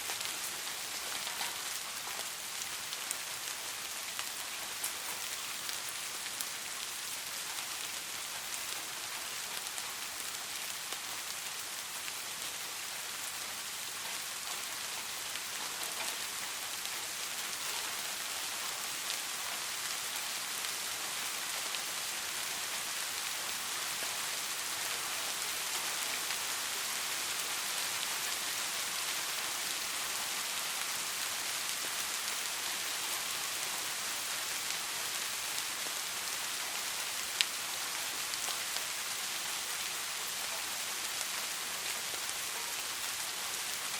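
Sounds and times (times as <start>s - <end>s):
steady rain falling: 0.0s - 43.9s
rain drop ticks: 0.1s - 3.3s, 13.8s - 20.0s.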